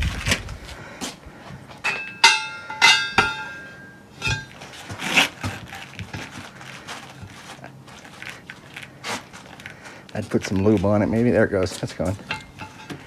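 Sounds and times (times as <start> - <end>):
scraping rustle: 0.0 - 1.6, 4.1 - 13.0
metal tools clanking on wheel: 1.6 - 13.0.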